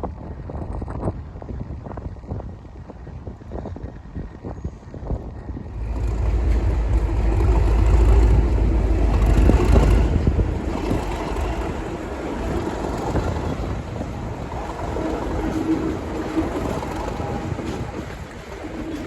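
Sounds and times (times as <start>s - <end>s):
diesel locomotive engine rumbling: 3.8s - 19.0s
rushing noise: 5.2s - 19.0s.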